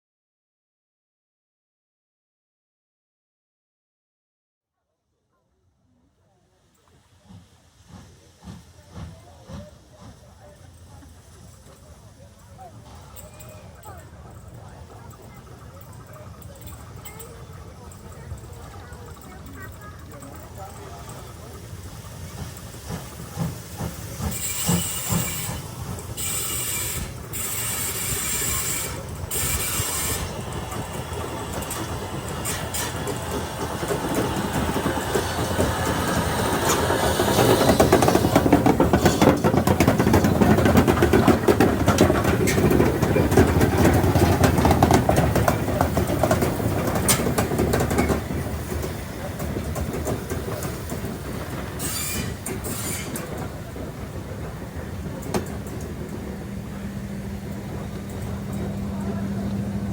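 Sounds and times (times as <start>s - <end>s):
train wheels clicking over rails: 6.7s - 59.9s.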